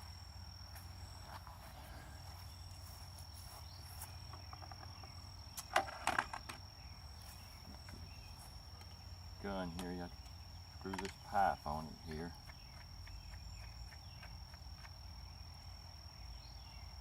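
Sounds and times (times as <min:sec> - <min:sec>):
high-pitched insect trill: 0:00.0 - 0:17.0
sharp clicks and knocks: 0:09.7 - 0:11.4.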